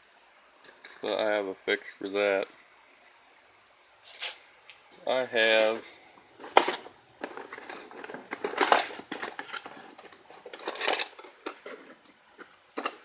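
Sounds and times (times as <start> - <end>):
metal parts clinking and rattling: 6.6 - 13.0.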